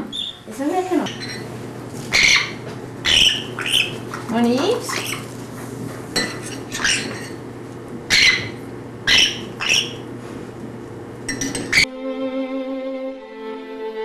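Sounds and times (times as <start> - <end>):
parrot squawking: 0.0 - 1.4, 2.1 - 5.3, 6.5 - 7.3, 8.1 - 10.1, 11.5 - 11.9
violin music: 11.9 - 14.0.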